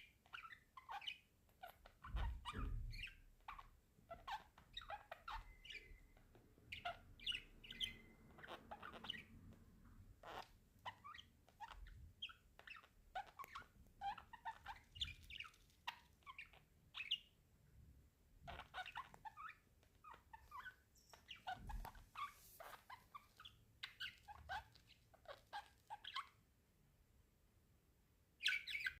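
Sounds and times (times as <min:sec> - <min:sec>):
budgerigars chattering: 0:04.2 - 0:09.4.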